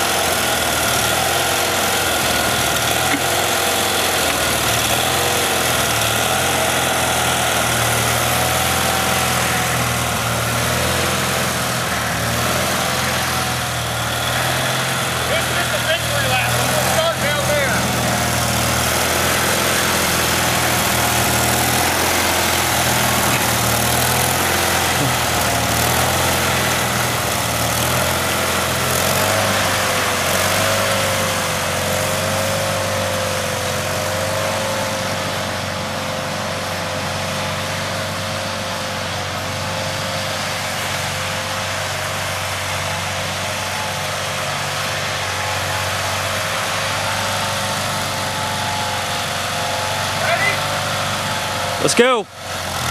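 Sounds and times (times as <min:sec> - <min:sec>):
lawn tractor engine running: 0:00.0 - 0:52.9.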